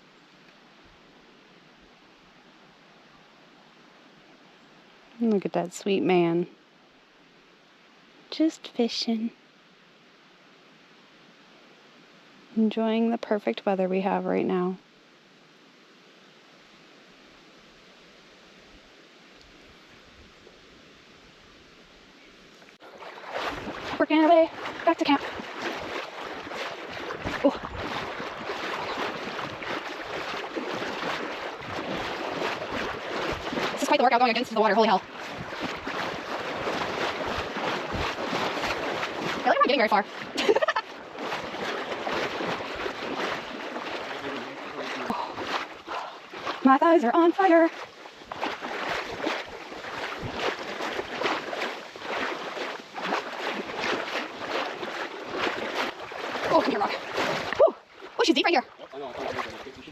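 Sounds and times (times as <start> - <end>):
water splashing around legs: 22.6 - 59.9.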